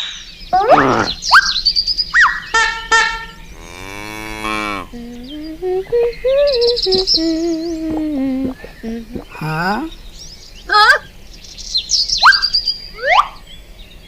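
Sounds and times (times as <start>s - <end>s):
animal chirps and whistling glides: 0.0s - 3.4s, 4.6s - 10.0s, 11.7s - 13.6s
cow mooing: 3.2s - 5.4s
low sliding animal calls: 3.4s - 10.0s.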